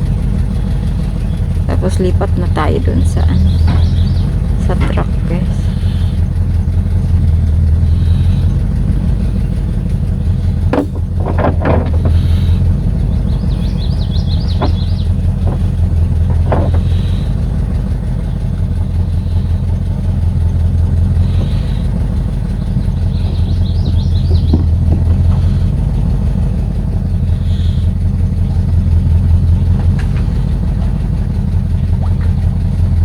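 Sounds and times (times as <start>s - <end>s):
vehicle engine idling: 0.0s - 33.0s
short knocks: 3.1s - 5.8s, 10.4s - 17.4s, 23.0s - 26.3s.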